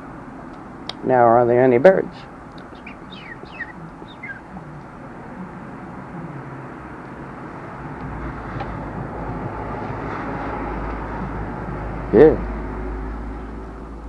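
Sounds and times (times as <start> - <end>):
road hum: 0.0 - 14.0
vehicle rumble approaching: 2.2 - 14.0
bird chirp: 2.6 - 4.7.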